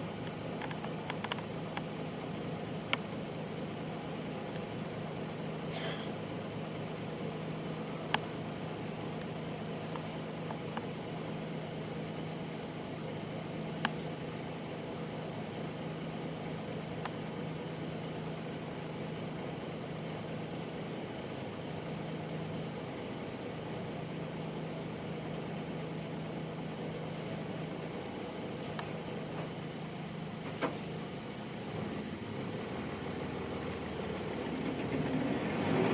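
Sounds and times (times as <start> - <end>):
diesel bus engine running: 0.0 - 35.9.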